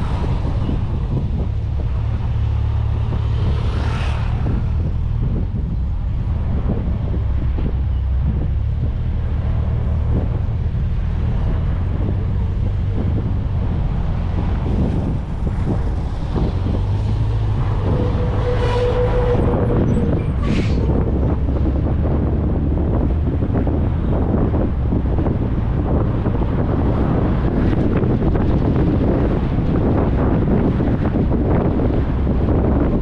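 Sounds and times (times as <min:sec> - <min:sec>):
car engine and tyres rumbling: 0:00.0 - 0:33.0
wind on microphone: 0:00.0 - 0:33.0.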